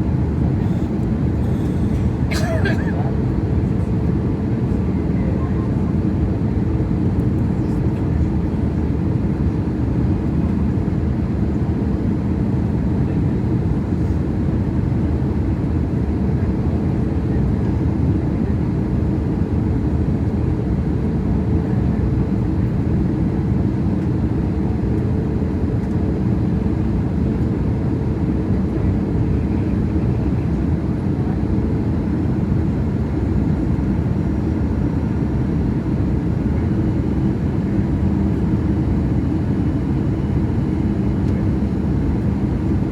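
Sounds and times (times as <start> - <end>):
airplane cabin rumble: 0.0 - 42.9.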